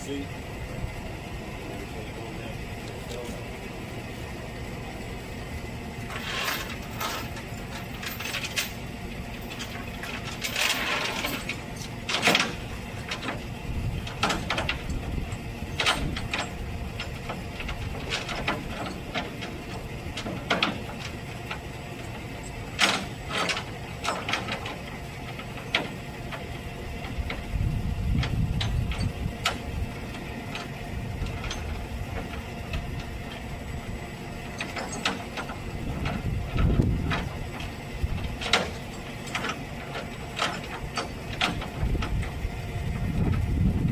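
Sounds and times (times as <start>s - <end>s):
truck engine running: 0.0s - 43.9s
metallic clicks and clanks: 6.1s - 13.4s, 14.0s - 26.4s, 28.2s - 33.4s, 34.4s - 42.4s.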